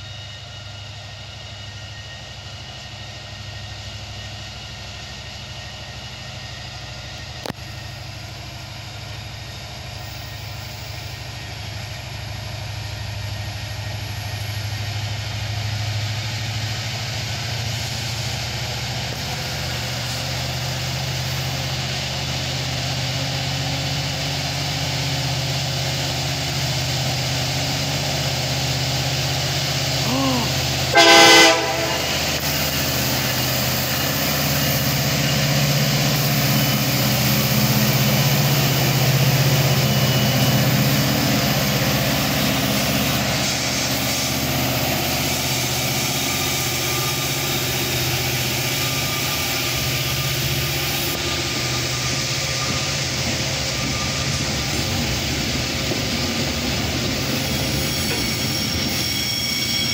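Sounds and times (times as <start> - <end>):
diesel train engine drone: 0.0 - 59.9
train horn blast: 30.1 - 32.4.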